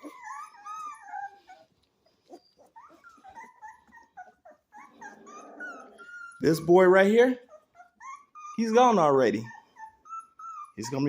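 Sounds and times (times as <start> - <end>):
puppies squealing and whimpering: 0.0 - 11.0.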